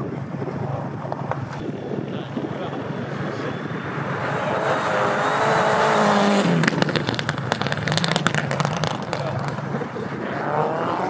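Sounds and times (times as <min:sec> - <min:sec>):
exhaust pops and crackles: 0:00.2 - 0:03.6, 0:06.0 - 0:10.4
car engine revving hard: 0:03.0 - 0:11.0.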